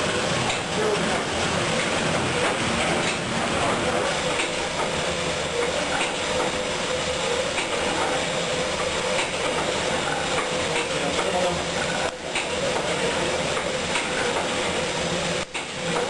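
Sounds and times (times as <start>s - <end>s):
steam engine clattering: 0.1s - 6.6s.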